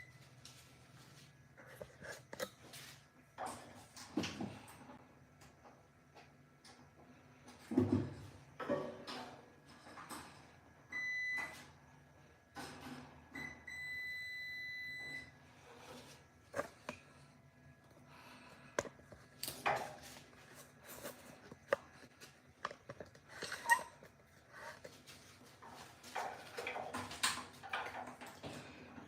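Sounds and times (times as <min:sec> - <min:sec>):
multimeter continuity beep: 0:10.9 - 0:11.6, 0:13.4 - 0:15.3.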